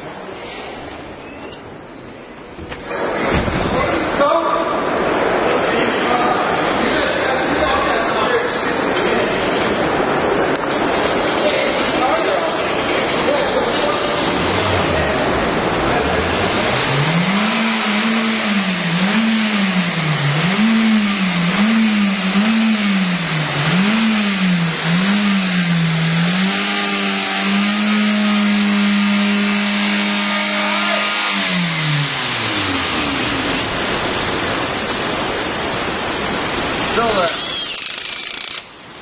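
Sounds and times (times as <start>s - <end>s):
car engine revving: 3.9s - 37.1s
loud steady hiss: 10.9s - 39.0s.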